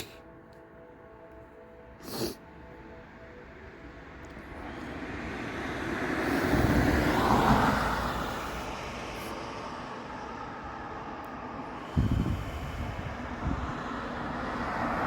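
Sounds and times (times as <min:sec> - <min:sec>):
vehicle passing by: 0:04.4 - 0:15.0.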